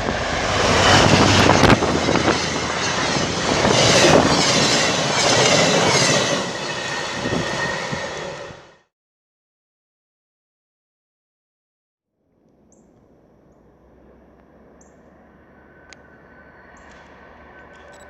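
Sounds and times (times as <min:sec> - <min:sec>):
high wheel squeal: 0:14.9 - 0:18.0.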